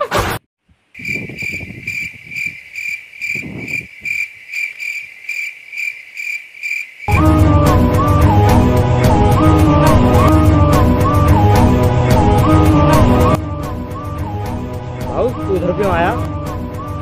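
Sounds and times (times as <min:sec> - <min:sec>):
crickets chirping: 0:01.0 - 0:07.1.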